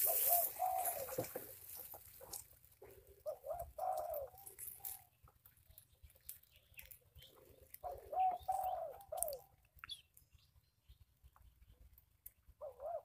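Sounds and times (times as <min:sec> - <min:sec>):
bird cooing: 0:00.0 - 0:05.2, 0:07.2 - 0:09.6, 0:12.6 - 0:13.0.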